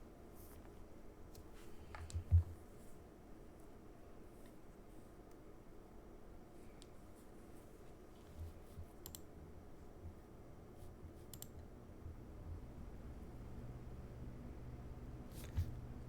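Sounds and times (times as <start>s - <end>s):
low room hum: 0.0s - 16.0s
computer mouse clicks: 8.3s - 9.3s, 11.2s - 11.7s.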